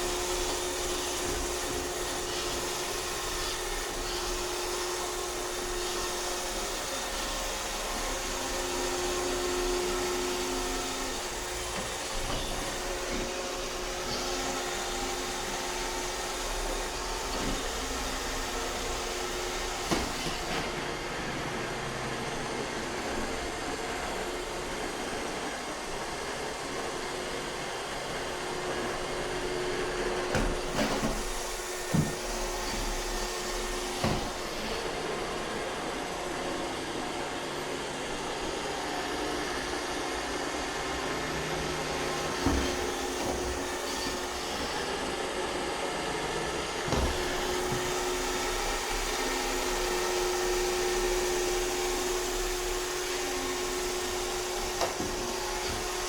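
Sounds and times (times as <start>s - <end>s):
robot vacuum whirring: 0.0s - 22.2s, 27.6s - 37.7s, 41.8s - 56.0s.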